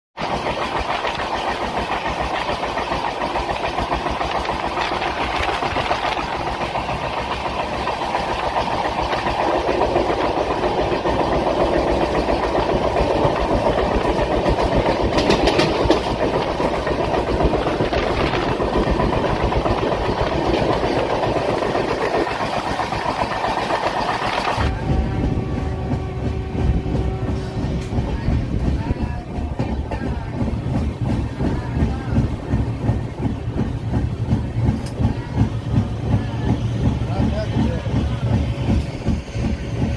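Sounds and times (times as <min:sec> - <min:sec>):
large engine idling: 0:00.2 - 0:39.9.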